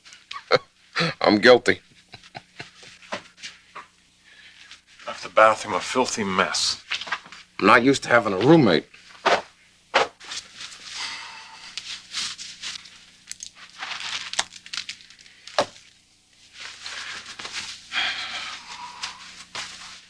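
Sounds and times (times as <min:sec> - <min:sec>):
rustling and crinkling handling noise: 0:10.2 - 0:20.0.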